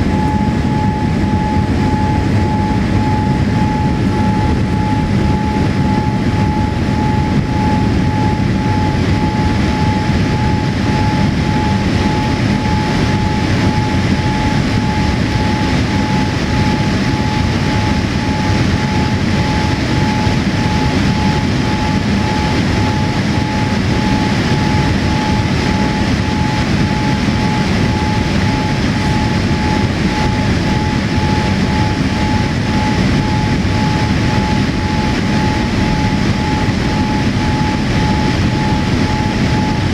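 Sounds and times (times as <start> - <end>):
airliner cabin engine rush: 0.0 - 39.9
steady whine: 0.0 - 39.9.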